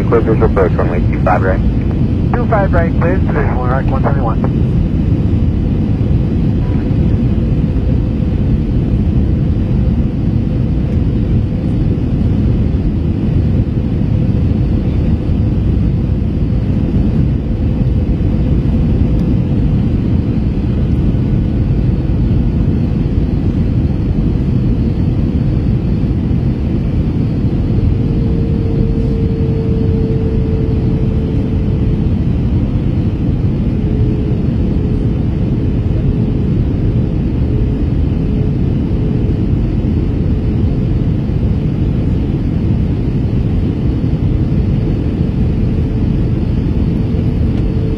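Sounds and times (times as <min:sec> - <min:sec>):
faint steady hum: 0:00.0 - 0:08.6, 0:16.6 - 0:42.2
airliner cabin rumble: 0:00.0 - 0:47.9.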